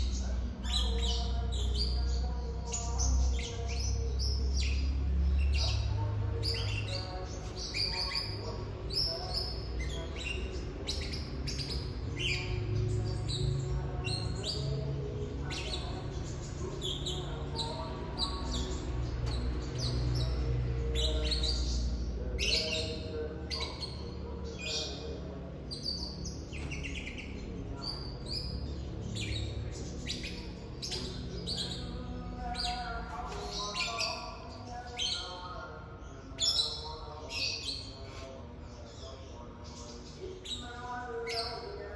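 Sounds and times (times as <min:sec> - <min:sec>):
songbird chirping and trilling: 0:00.0 - 0:41.9.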